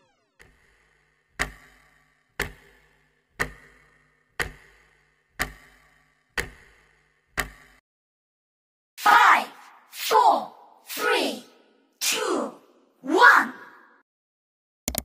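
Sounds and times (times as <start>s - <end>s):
clock ticking: 0.4s - 7.8s.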